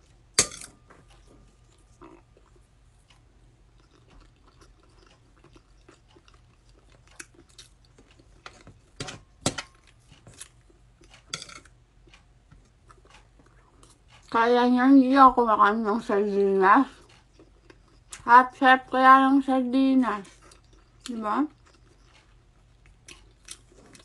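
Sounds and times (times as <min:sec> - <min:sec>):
cutlery clicking on plate: 0:00.4 - 0:01.0, 0:11.2 - 0:11.7
woman chewing: 0:00.9 - 0:14.4, 0:16.8 - 0:18.2, 0:20.2 - 0:24.0.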